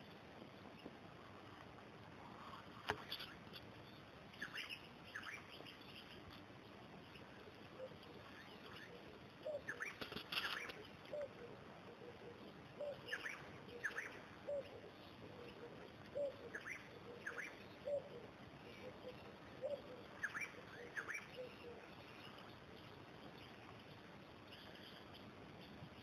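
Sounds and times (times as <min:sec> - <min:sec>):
faint hiss: 0:00.0 - 0:26.0.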